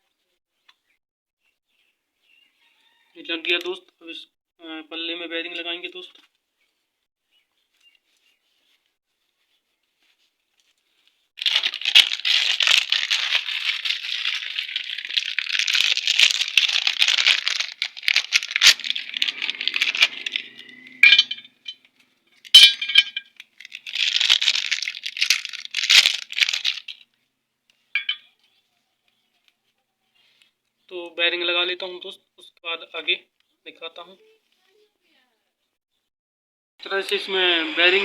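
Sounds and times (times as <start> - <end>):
metal parts rattling and scraping: 11.6 - 21.9, 22.5 - 26.1
ringing metallic clinks: 19.1 - 21.9.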